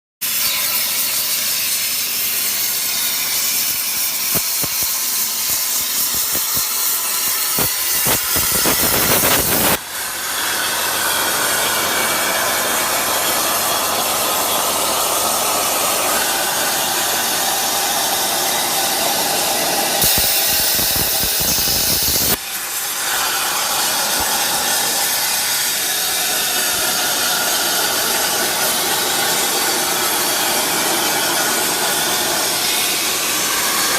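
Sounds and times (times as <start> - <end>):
plasma torch hissing: 0.2 - 33.9.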